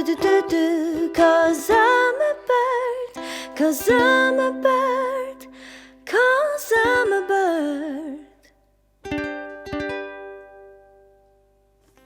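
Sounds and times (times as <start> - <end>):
ukulele strums: 0.0 - 5.5, 9.0 - 12.0
woman singing wordless phrase: 0.0 - 5.5, 6.1 - 8.4.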